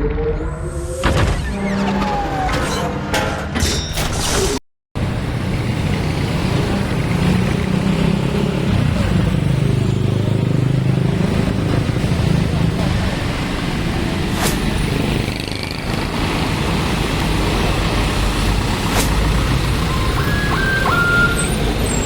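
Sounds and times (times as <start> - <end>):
traffic noise: 5.0 - 22.0
vehicle engine rumble: 5.0 - 22.0.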